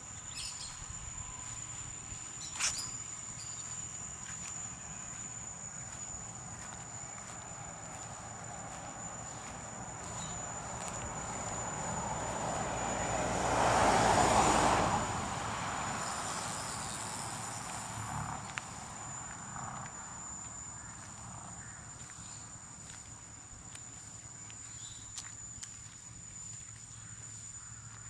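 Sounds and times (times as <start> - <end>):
high-pitched insect drone: 1.4 - 21.0
vehicle passing by: 6.6 - 20.2.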